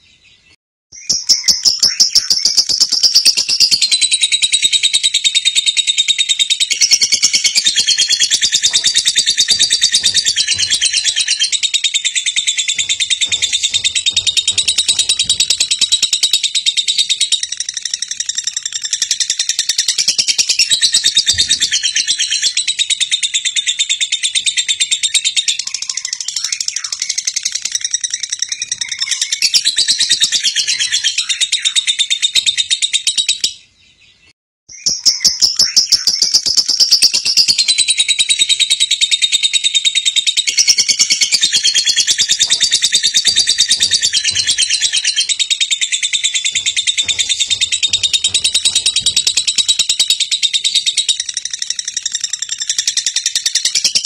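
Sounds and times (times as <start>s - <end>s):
birds chirping chorus: 6.6s - 18.3s, 40.5s - 52.1s.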